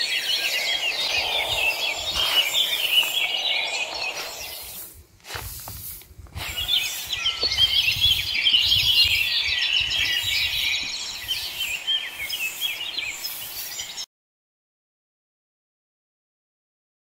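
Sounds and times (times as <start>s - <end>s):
small birds chirping: 0.0s - 14.1s.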